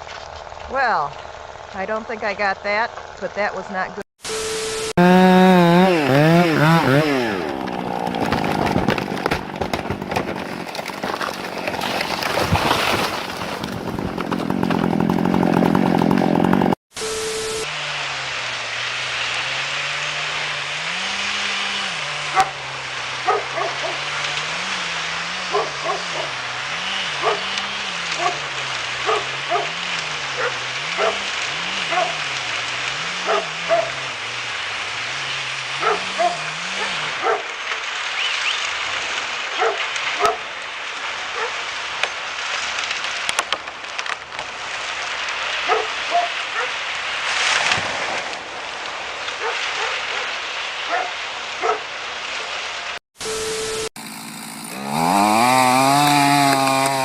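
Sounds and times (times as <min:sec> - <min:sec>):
dog barking: 0:22.3 - 0:22.6, 0:23.2 - 0:24.1, 0:25.4 - 0:26.4, 0:27.2 - 0:32.3, 0:33.2 - 0:34.1, 0:35.8 - 0:37.5, 0:39.5 - 0:40.5, 0:41.3 - 0:41.6, 0:45.6 - 0:46.8, 0:49.4 - 0:51.9.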